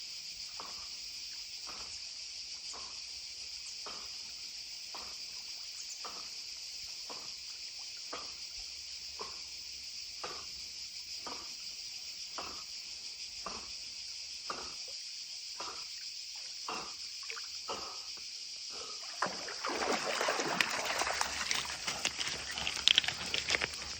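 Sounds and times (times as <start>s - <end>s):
insects chirring: 0.0s - 23.9s
dog paddling in water: 18.8s - 23.9s
loud splashing: 19.0s - 22.8s.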